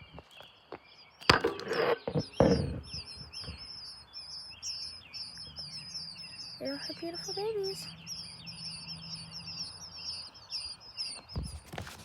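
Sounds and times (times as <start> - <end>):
baby birds chirping: 0.0 - 12.0
loud rustles: 11.3 - 12.0.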